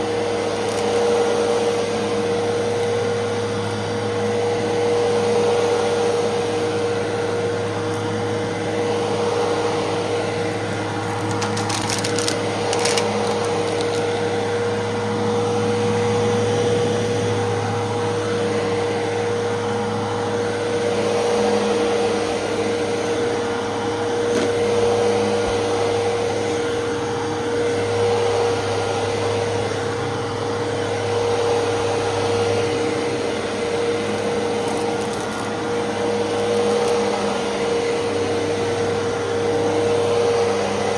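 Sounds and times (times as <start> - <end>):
vacuum cleaner motor whine: 0.0 - 40.9
brief crackles: 11.0 - 14.1.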